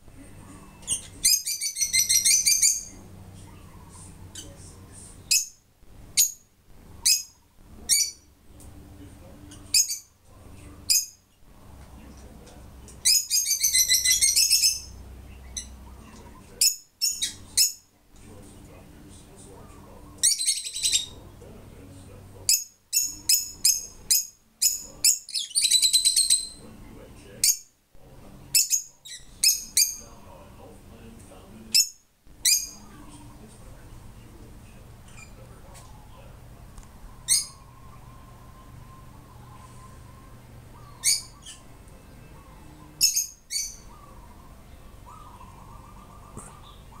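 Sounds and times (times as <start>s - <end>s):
bird calling: 0.5s - 4.6s, 12.9s - 17.9s, 19.5s - 21.3s, 22.4s - 26.7s, 37.1s - 47.0s.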